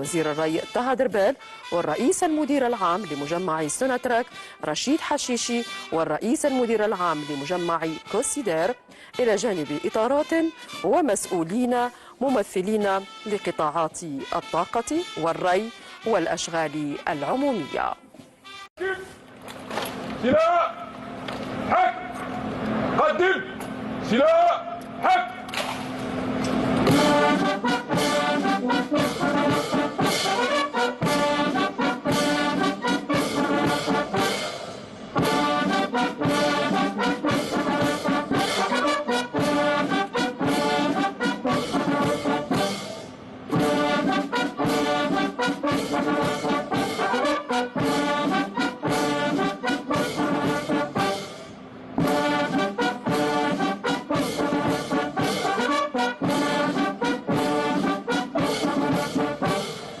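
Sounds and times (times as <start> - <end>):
military brass band playing: 0.0 - 4.3, 5.4 - 11.6, 23.7 - 60.0.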